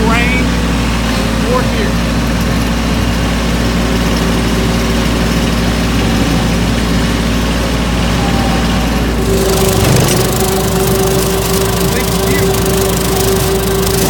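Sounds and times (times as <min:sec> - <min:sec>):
high whine: 0:00.0 - 0:14.0
tractor diesel engine under load: 0:00.0 - 0:14.0
rotary cutter through grass: 0:09.1 - 0:14.0.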